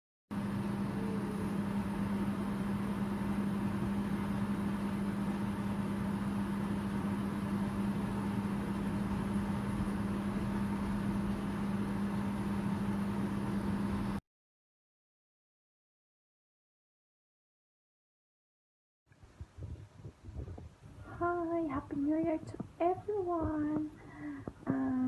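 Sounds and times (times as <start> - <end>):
machine hum with low drone: 0.3 - 14.2.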